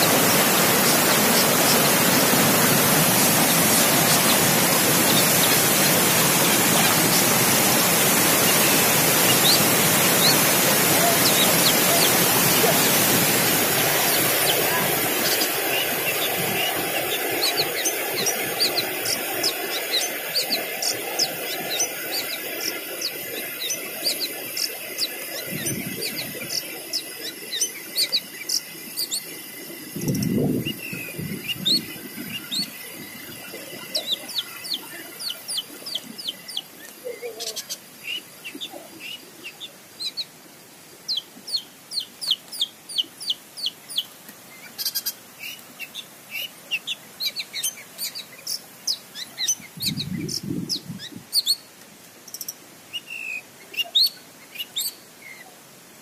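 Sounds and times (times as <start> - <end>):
steady rushing noise: 0.0 - 37.0
small birds chirping: 0.0 - 40.4, 41.1 - 51.7.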